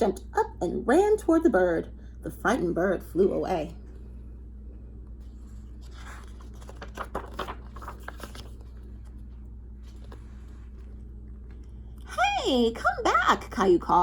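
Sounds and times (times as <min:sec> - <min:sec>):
steady low hum: 0:00.0 - 0:14.0
pages turning with light clicks: 0:05.0 - 0:12.0
paper rustling: 0:05.2 - 0:11.8.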